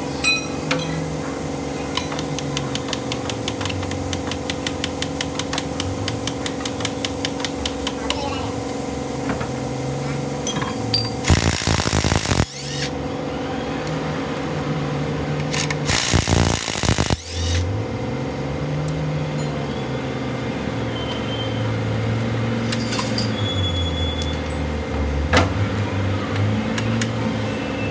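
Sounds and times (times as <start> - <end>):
power tool bursts: 11.2 - 13.0, 15.5 - 17.7.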